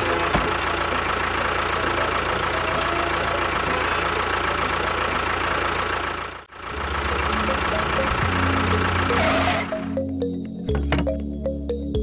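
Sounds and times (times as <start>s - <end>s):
small engine running: 0.0s - 10.1s.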